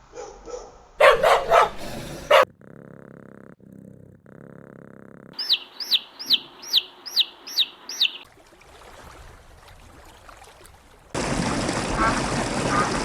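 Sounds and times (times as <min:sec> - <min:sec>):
chick peeping: 0:05.4 - 0:08.2.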